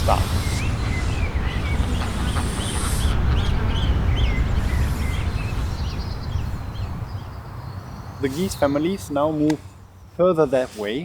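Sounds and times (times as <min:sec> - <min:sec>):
goslings peeping: 0:00.0 - 0:07.2
wind rumble on microphone: 0:00.0 - 0:08.6.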